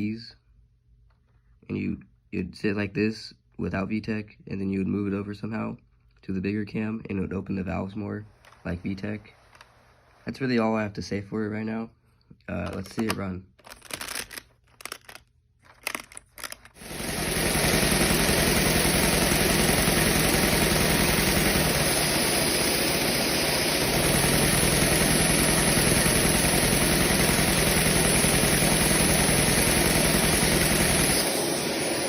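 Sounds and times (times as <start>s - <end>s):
clicks: 8.3s - 10.2s, 12.4s - 16.8s
model engine clatter: 15.8s - 22.6s
vacuum cleaner suction: 16.8s - 32.0s.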